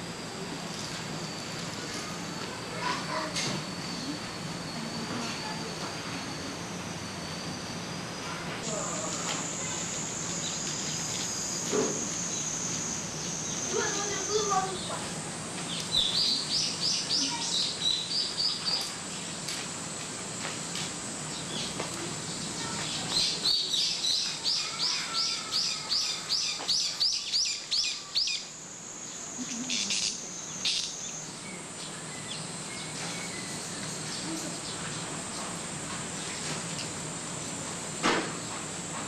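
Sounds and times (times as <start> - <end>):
steady high buzz: 0.0 - 39.0
small bird singing: 12.2 - 15.0, 15.7 - 18.9, 21.3 - 28.5, 29.1 - 35.4.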